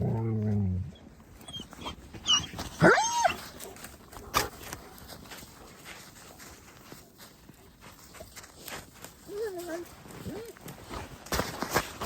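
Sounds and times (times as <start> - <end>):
dog whining: 0.8 - 3.4.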